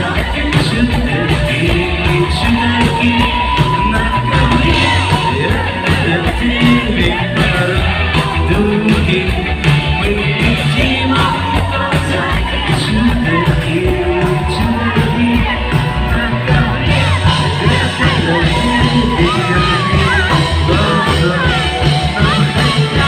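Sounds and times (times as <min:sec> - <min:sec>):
person singing: 0:00.0 - 0:23.0
rock band playing: 0:00.0 - 0:23.0
steady drum beat: 0:00.0 - 0:23.0.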